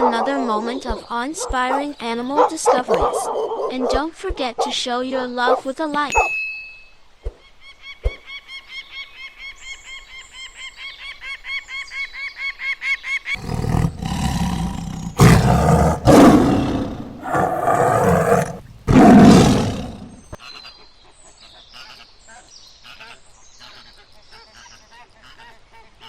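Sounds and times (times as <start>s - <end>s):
large animal roaring: 13.4s - 20.3s.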